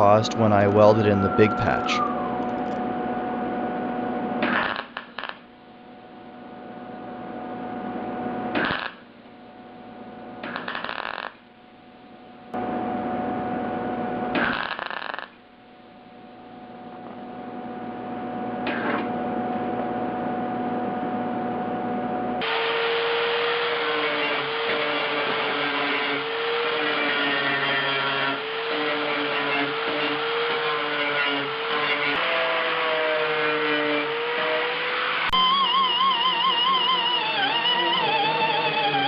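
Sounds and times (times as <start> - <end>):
welder humming: 0.0 - 6.3, 15.9 - 39.0
welding bursts: 4.4 - 5.4, 8.6 - 9.0, 10.4 - 11.4, 14.4 - 15.4.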